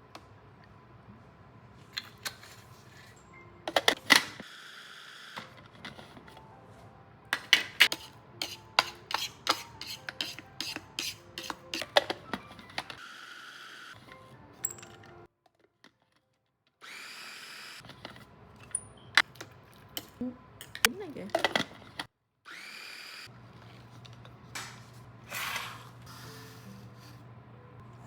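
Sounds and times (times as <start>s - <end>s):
hard objects clicking and tapping: 7.3s - 13.0s.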